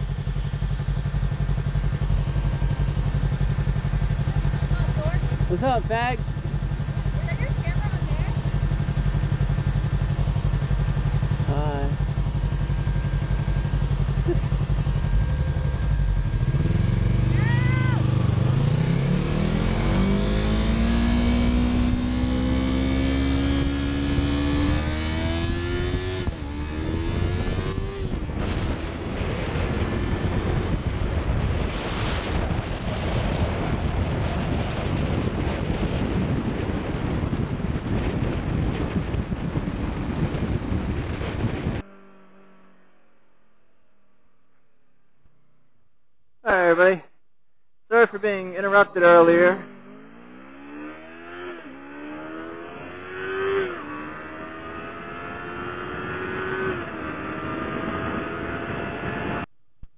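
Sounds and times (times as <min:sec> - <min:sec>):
wind rushing over microphone: 0:00.0 - 0:41.9
motorcycle engine accelerating: 0:00.0 - 0:47.1, 0:47.9 - 0:59.9.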